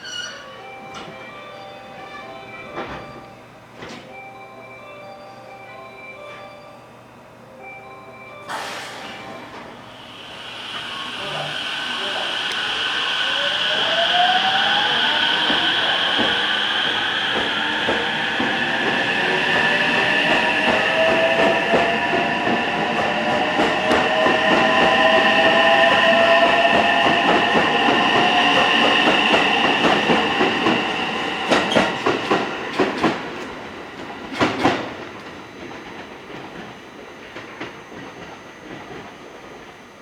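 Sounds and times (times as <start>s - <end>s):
train motor whine rising: 8.5s - 33.0s.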